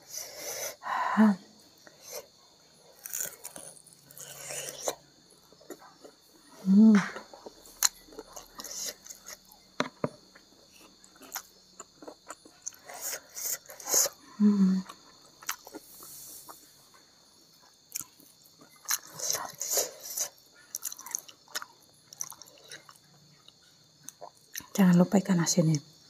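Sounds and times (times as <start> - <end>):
person humming: 6.6 - 7.2, 14.4 - 14.9
person chewing with mouth clicks: 7.2 - 14.2, 14.8 - 16.6, 17.9 - 24.8.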